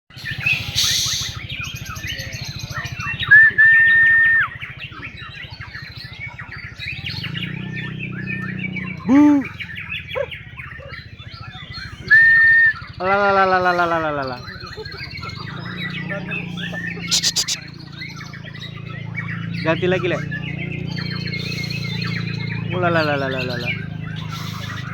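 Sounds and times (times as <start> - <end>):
songbirds singing: 0.1 - 24.9
loud level whistle notes: 3.3 - 4.5, 12.0 - 12.8.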